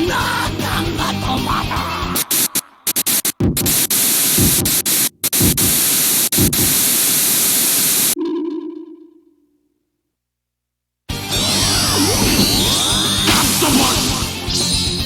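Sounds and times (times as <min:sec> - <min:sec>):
static-like hiss bursts: 0:02.1 - 0:08.2.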